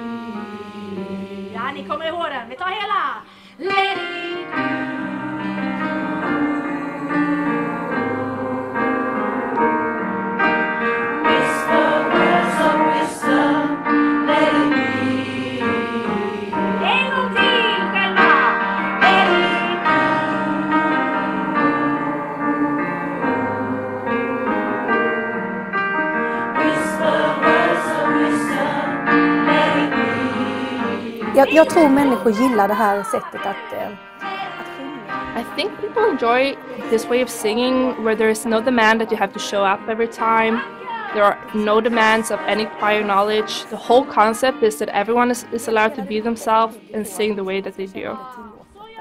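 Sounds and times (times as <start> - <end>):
electric piano: 0.0 - 1.9
choir singing: 0.0 - 2.1, 3.6 - 49.0.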